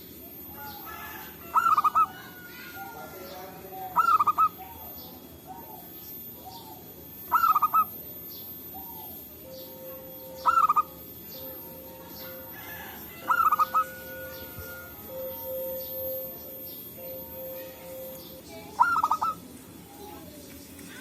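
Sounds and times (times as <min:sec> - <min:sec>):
doves cooing: 0:00.0 - 0:21.0
faint lower dove coos: 0:00.2 - 0:21.0.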